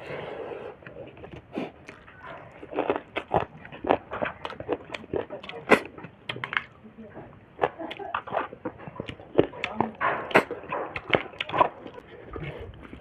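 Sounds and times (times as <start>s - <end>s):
person chewing and biting meat: 0.6s - 6.8s, 7.5s - 13.0s
wet mouth clicks: 0.8s - 6.7s, 7.6s - 13.0s.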